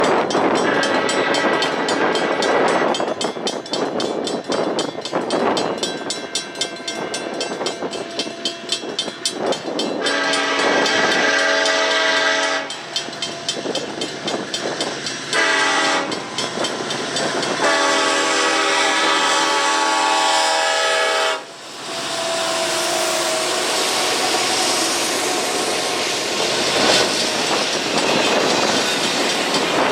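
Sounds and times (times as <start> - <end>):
railroad crossing bells ringing: 0.0 - 29.9
train passing: 0.0 - 29.9
train horn blasts: 0.5 - 3.0, 10.0 - 12.9, 15.3 - 16.3, 17.5 - 26.0.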